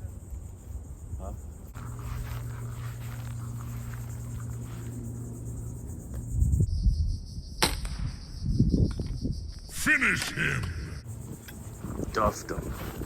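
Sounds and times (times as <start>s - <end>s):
insects buzzing: 0.0s - 13.0s
low steady hum: 1.6s - 6.7s.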